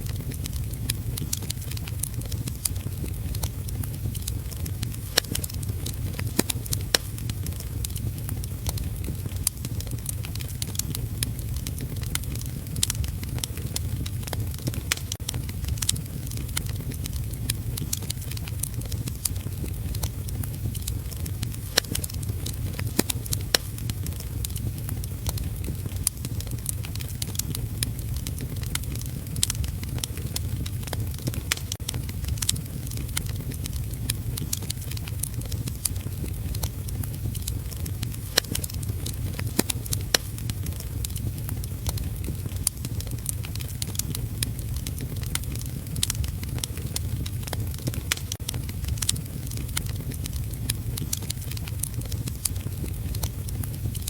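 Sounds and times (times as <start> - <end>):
low rumble: 0.0 - 54.0
wood fire crackling: 0.0 - 54.0.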